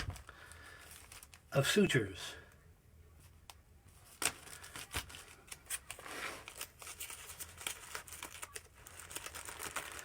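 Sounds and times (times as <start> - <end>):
plastic packaging crinkling: 0.0 - 1.5, 4.0 - 10.0.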